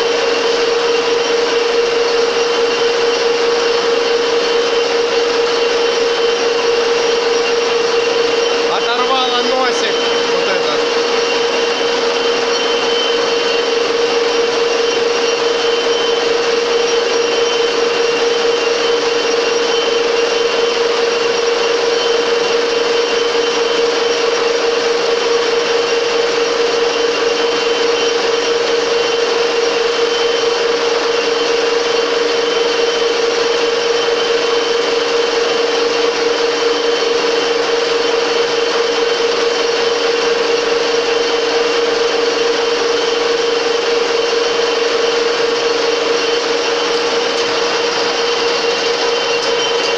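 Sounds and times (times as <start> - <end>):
metal lathe whining: 0.0 - 49.9
cutting tool hiss: 5.7 - 20.6.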